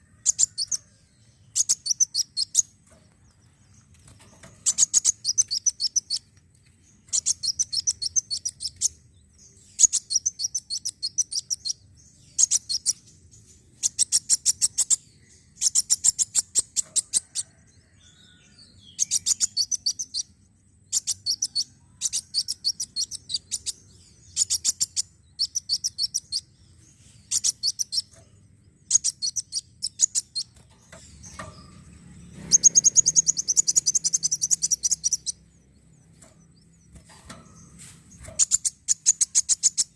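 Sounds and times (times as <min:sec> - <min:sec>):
sunbird high-pitched ticking chirps: 0:01.4 - 0:02.7, 0:04.6 - 0:13.2, 0:13.8 - 0:17.4, 0:19.0 - 0:20.3, 0:20.9 - 0:26.6, 0:27.2 - 0:28.2, 0:28.8 - 0:39.9.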